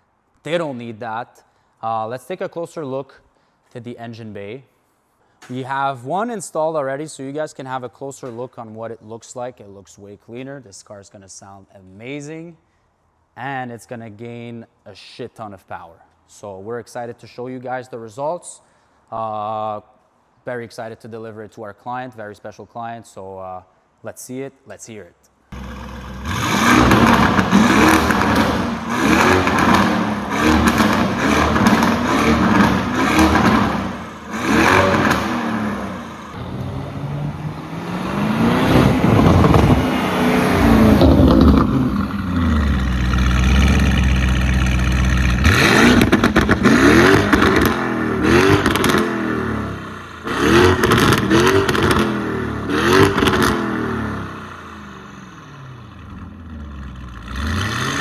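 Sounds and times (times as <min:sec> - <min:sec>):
car engine revving: 0:25.6 - 0:58.0.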